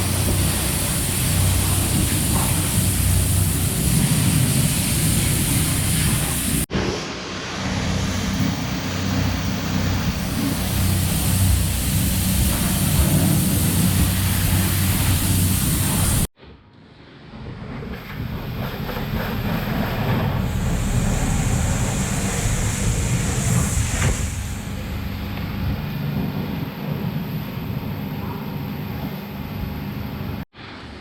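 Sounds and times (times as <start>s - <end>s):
machine hissing and humming: 0.0s - 16.3s, 17.8s - 31.0s.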